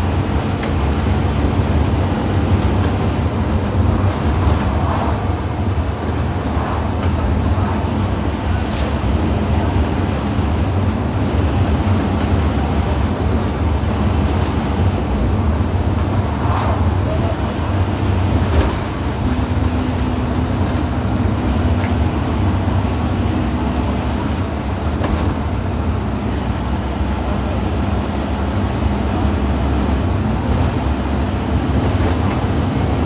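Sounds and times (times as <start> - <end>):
bus diesel engine droning: 0.0 - 33.0.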